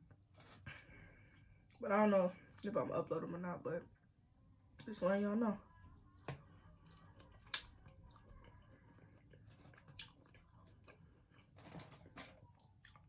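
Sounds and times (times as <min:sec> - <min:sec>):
chewing with wet crunches: 0:06.5 - 0:13.0.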